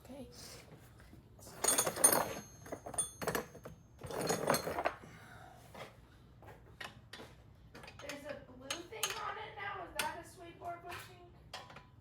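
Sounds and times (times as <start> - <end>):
metal tools clinking and rattling: 1.5 - 5.0.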